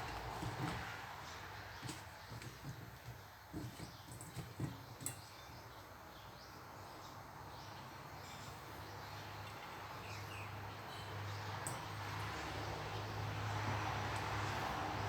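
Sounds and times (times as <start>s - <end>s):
soft knocks: 1.8s - 5.2s.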